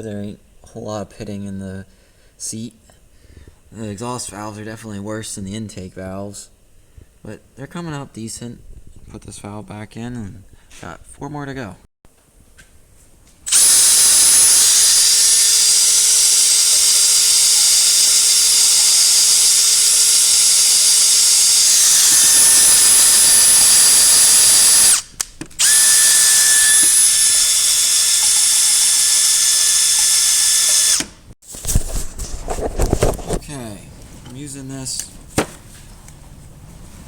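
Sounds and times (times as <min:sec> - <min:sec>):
power drill running: 0:13.5 - 0:31.3.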